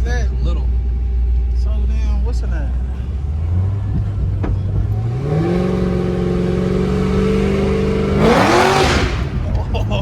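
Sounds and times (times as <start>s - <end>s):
car engine revving: 2.4s - 10.0s.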